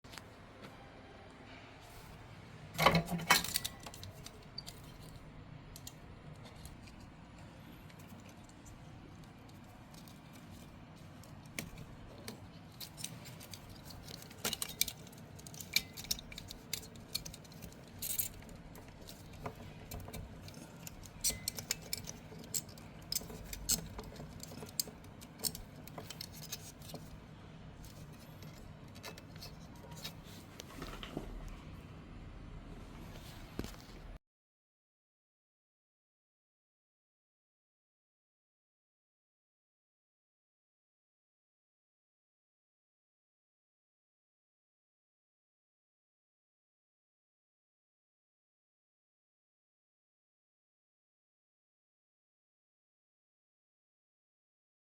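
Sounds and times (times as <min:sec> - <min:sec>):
metal parts clattering: 0:02.8 - 0:05.1, 0:11.2 - 0:27.1
small metal tools clinking: 0:11.3 - 0:27.1.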